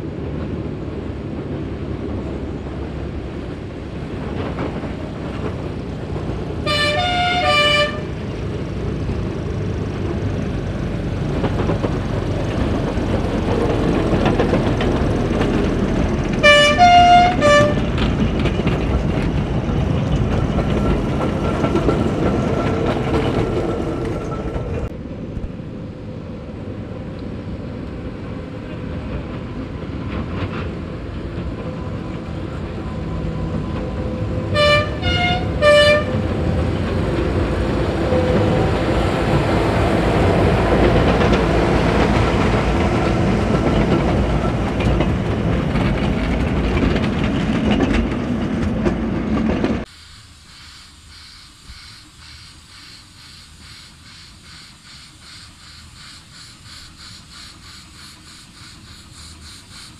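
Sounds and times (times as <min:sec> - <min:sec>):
wheels clicking over rail joints: 0:00.2 - 0:25.5, 0:28.8 - 0:49.9
miniature train rolling: 0:03.2 - 0:25.0, 0:29.0 - 0:59.9
locomotive toots: 0:12.6 - 0:24.9, 0:32.6 - 0:47.9.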